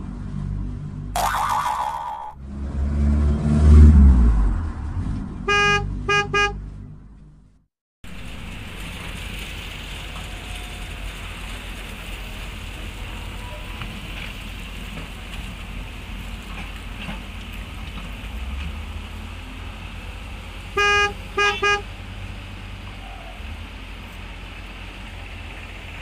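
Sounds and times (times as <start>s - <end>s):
car horn beeping: 5.4s - 6.6s, 20.8s - 21.9s.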